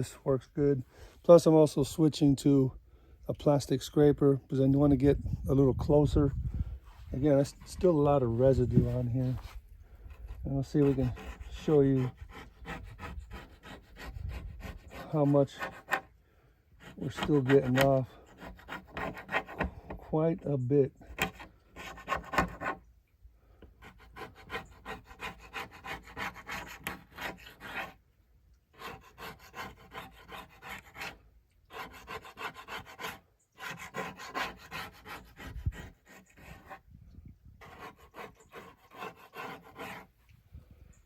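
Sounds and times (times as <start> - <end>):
plastic scraper rasping on wood: 8.7 - 16.1, 16.8 - 20.1, 21.1 - 22.8, 23.7 - 28.0, 28.8 - 36.9, 37.6 - 40.1.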